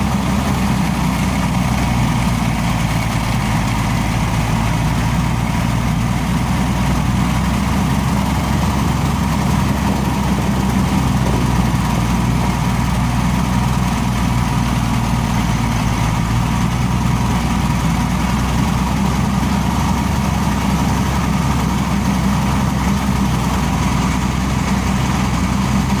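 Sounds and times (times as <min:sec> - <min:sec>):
compressor running: 0:04.8 - 0:15.4.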